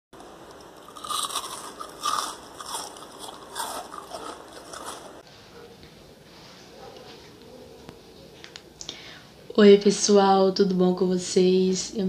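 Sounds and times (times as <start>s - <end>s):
crunchy chewing of food: 0.5s - 5.2s.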